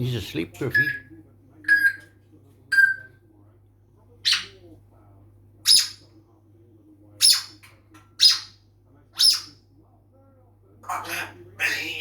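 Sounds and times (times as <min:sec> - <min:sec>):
parrot squawking: 0:00.7 - 0:02.1, 0:04.2 - 0:04.6, 0:05.6 - 0:06.0, 0:07.2 - 0:07.6, 0:08.2 - 0:08.6, 0:09.2 - 0:09.6, 0:10.8 - 0:12.0.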